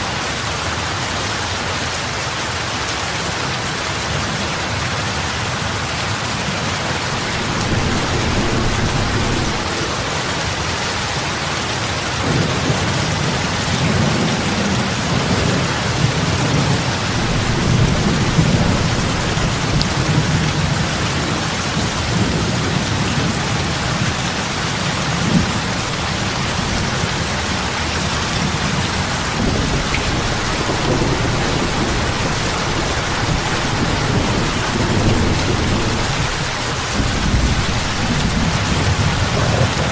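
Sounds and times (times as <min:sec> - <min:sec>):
heavy rain on water: 0:00.0 - 0:39.9
low rumble: 0:07.1 - 0:10.4.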